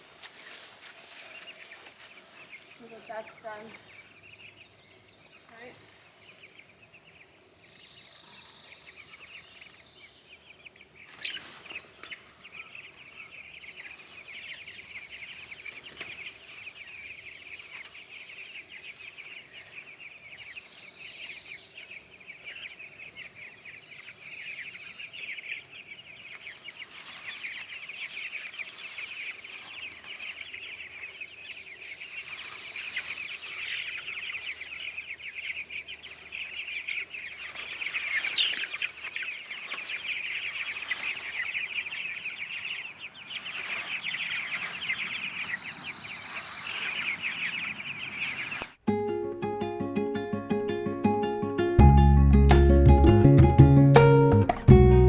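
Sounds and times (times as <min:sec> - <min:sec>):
chickens clucking: 0:10.4 - 0:24.1, 0:25.0 - 0:48.7.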